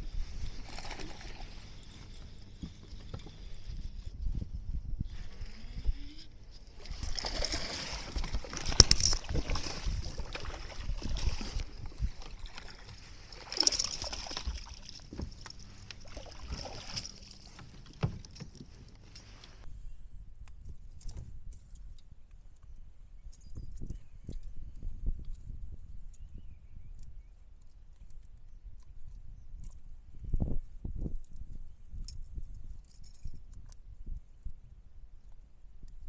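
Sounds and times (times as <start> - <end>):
water splashing around kayak: 0.0 - 4.3, 5.1 - 19.7.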